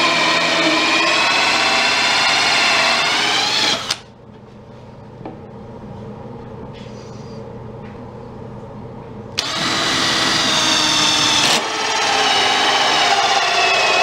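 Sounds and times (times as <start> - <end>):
power tool cutting wood: 0.0 - 4.0, 9.4 - 14.0.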